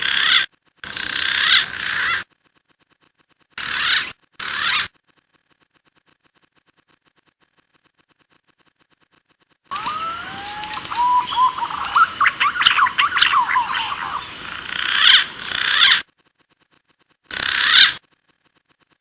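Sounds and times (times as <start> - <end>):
pigeon lure call whistles: 9.7 - 13.6
high chirping calls: 9.7 - 16.0.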